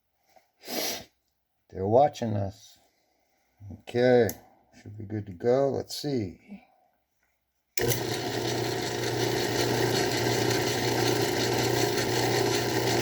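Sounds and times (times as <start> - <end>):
bench lathe running: 7.8 - 13.0.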